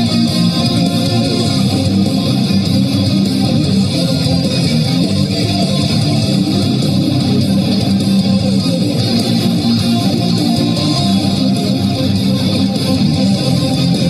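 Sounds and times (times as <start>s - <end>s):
guitar music: 0.0s - 14.0s.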